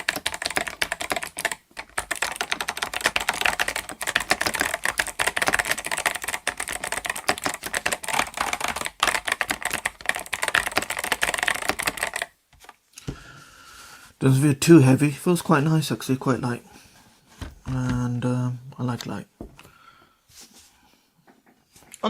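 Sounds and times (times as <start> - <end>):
mechanical keyboard typing: 0.0 - 12.4.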